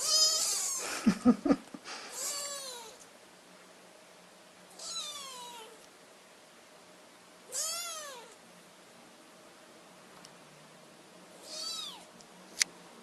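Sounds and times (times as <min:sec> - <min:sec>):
kitten meowing: 0:00.0 - 0:00.8, 0:02.1 - 0:03.0, 0:04.8 - 0:05.8, 0:07.5 - 0:08.4, 0:11.4 - 0:12.1.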